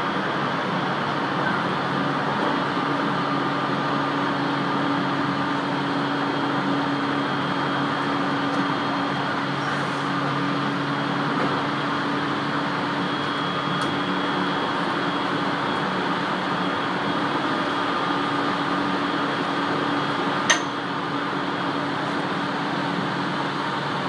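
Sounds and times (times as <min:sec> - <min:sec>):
constant hum: 0:00.0 - 0:24.0.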